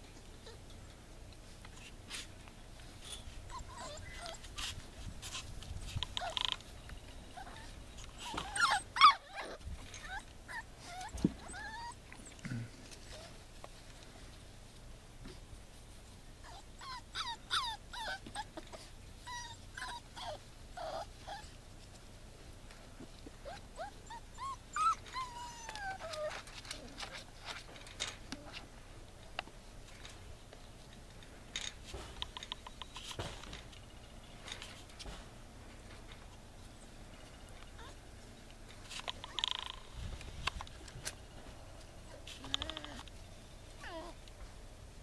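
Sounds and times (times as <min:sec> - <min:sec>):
puppies whimpering and yipping: 0:03.1 - 0:12.4, 0:16.4 - 0:21.6, 0:23.4 - 0:27.6, 0:37.7 - 0:38.0, 0:43.8 - 0:44.2.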